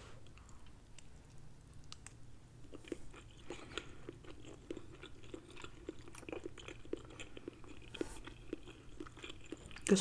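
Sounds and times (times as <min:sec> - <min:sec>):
chewing with wet mouth clicks: 0:00.2 - 0:10.0.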